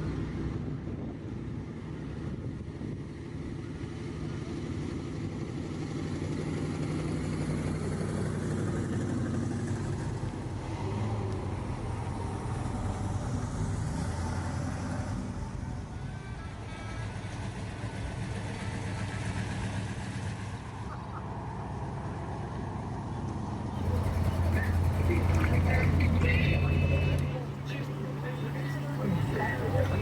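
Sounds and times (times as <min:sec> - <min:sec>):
outdoor crowd noise: 0:00.0 - 0:02.3, 0:03.0 - 0:30.0
car engine running: 0:23.8 - 0:30.0.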